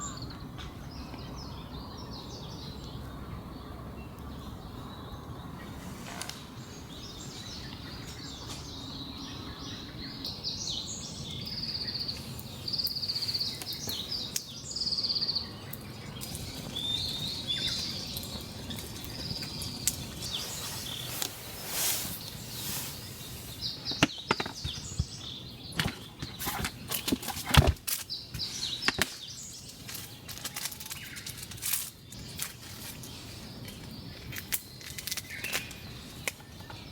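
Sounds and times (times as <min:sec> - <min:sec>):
birds calling and trilling: 0:00.0 - 0:36.9
background hiss: 0:10.0 - 0:33.7.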